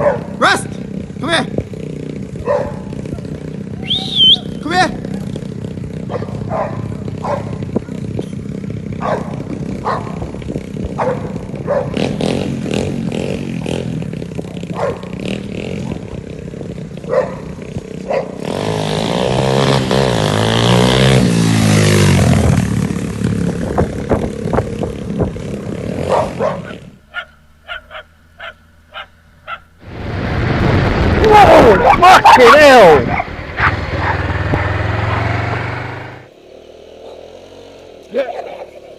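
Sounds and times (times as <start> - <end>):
dog barking: 0.0 - 0.3, 2.4 - 2.9, 6.1 - 7.6, 9.0 - 10.2, 11.0 - 12.0, 14.7 - 15.1, 17.1 - 17.5, 18.1 - 18.4, 26.0 - 29.7, 31.8 - 34.3, 37.0 - 37.3
motorcycle engine running: 0.0 - 38.9.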